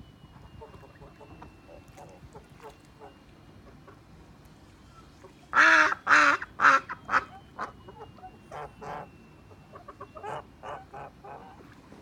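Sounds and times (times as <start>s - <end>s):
waterfowl calling: 4.9s - 11.8s.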